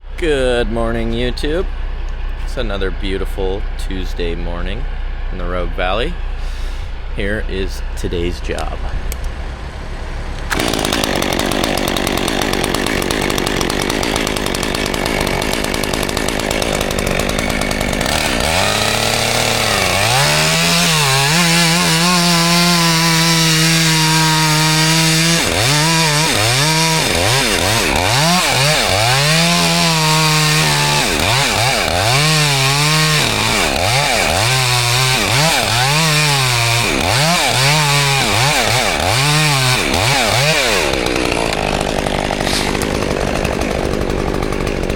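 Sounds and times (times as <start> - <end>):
chainsaw revving: 10.4 - 44.9.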